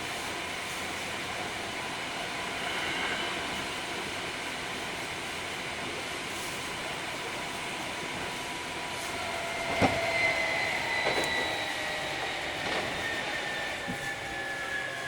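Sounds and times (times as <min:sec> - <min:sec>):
train motor whine: 0:06.4 - 0:15.0
wheels clunking over rail joints: 0:09.1 - 0:14.8.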